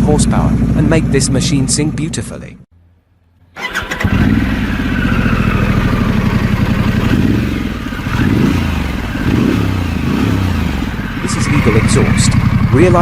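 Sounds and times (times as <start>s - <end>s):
motorcycle engine idling: 3.7s - 13.0s.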